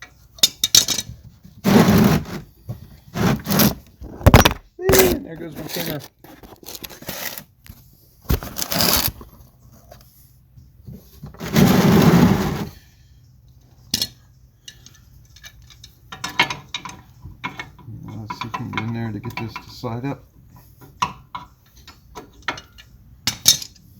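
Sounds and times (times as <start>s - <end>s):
rustling clatter: 0.7s - 10.0s, 10.9s - 12.8s.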